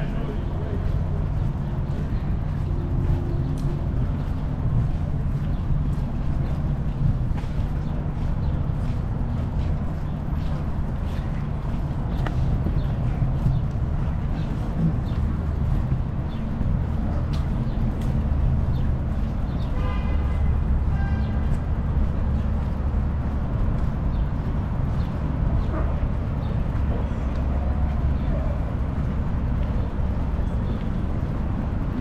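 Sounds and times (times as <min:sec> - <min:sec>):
wind and road noise: 0:00.0 - 0:32.0
vehicle horn toot: 0:19.7 - 0:21.4.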